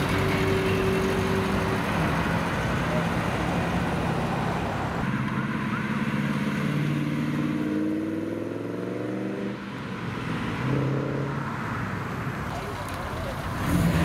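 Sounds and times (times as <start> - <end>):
car engine accelerating: 12.4 - 14.0.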